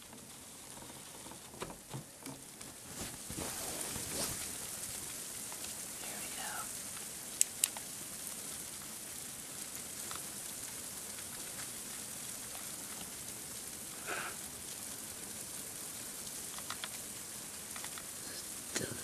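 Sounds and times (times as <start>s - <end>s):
freezing rain falling: 0.0s - 19.0s
faint ticks: 5.0s - 7.9s, 9.6s - 13.4s, 16.0s - 19.0s.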